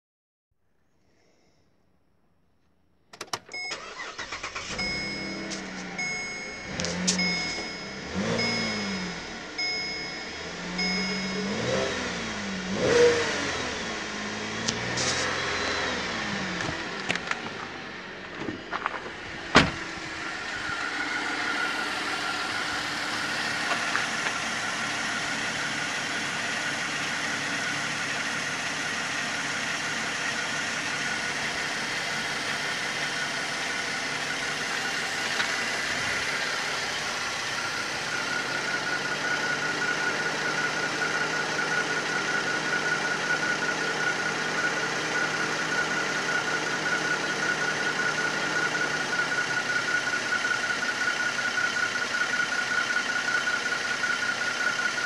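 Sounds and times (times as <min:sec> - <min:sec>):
car engine idling: 0:03.1 - 0:55.0
high-pitched whine: 0:14.6 - 0:50.4.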